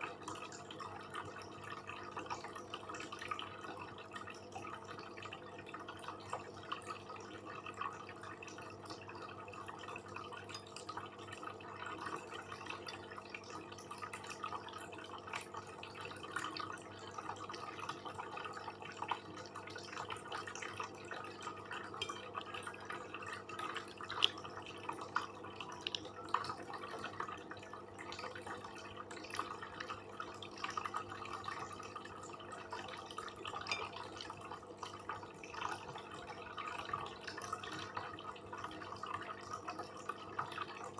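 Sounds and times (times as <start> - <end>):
chewing and mouth clicks: 25.8 - 26.1.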